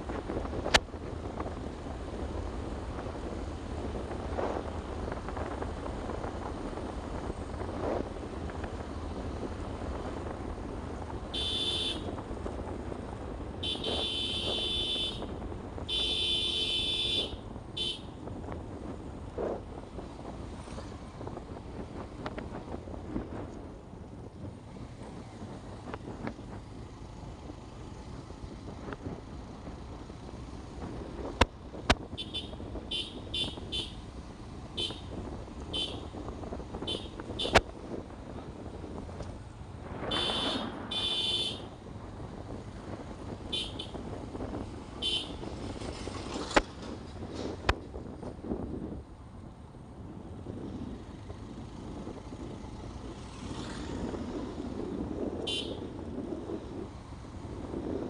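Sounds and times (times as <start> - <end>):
wind and motorcycle road rumble: 0.0 - 58.0
high-pitched vehicle horn: 11.3 - 12.2, 13.6 - 15.3, 15.9 - 18.2, 32.1 - 34.0, 34.8 - 35.1, 35.7 - 36.1, 36.8 - 37.6, 40.1 - 41.8, 43.5 - 44.0, 45.0 - 45.4, 55.4 - 55.9.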